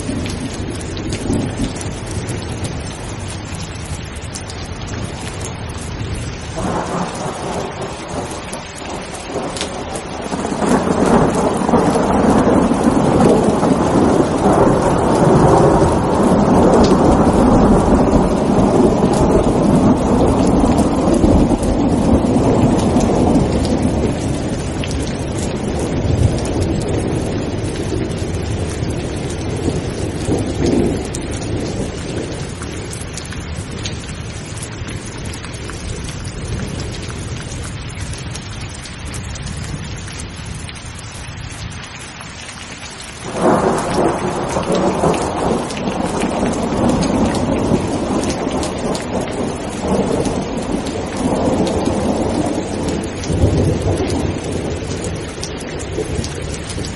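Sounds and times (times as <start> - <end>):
rolling thunder: 0.0 - 3.2, 5.0 - 37.5, 43.2 - 56.9
steady rain: 0.0 - 56.9
thunderclap: 6.6 - 32.9, 43.2 - 56.9.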